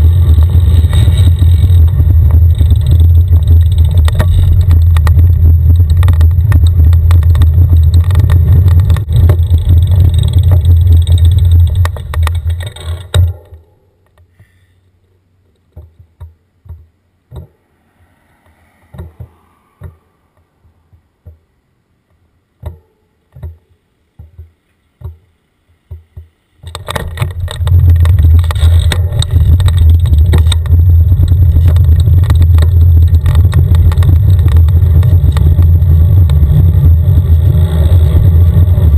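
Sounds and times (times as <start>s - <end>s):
scattered clicks and knocks: 0.0s - 14.3s, 15.6s - 17.5s, 25.9s - 38.9s.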